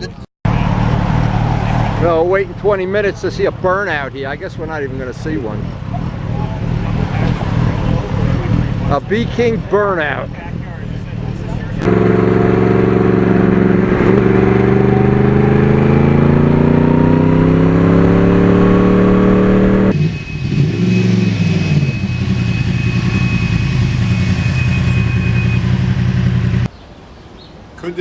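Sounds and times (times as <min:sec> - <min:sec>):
motorcycle engine revving: 0:00.5 - 0:02.6, 0:05.5 - 0:09.0, 0:10.4 - 0:26.7.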